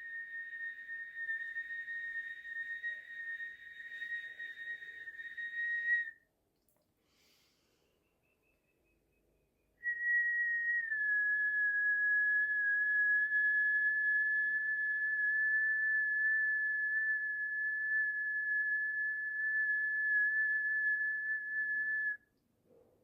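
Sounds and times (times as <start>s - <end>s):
high whistle-like tone: 0.0s - 6.2s, 9.8s - 22.3s.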